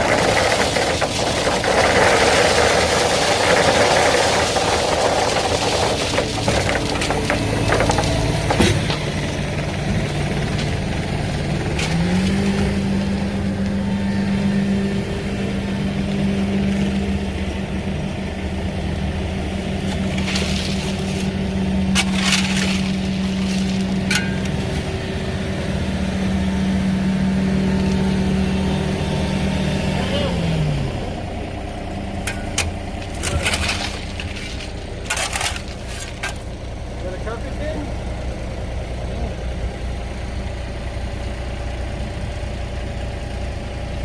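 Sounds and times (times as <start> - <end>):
stone and gravel knocks and scrapes: 0.0 - 10.9, 19.8 - 24.7, 32.3 - 36.6
excavator diesel engine under load: 0.0 - 44.0.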